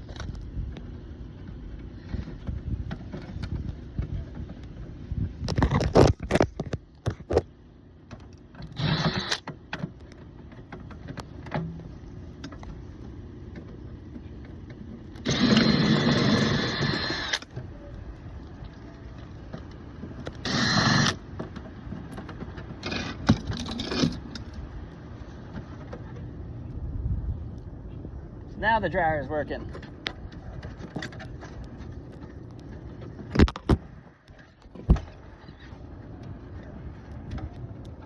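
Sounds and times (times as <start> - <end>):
steady low hum: 0.0 - 38.0
cordless drill whining: 8.7 - 9.4, 15.2 - 17.4, 20.5 - 21.2.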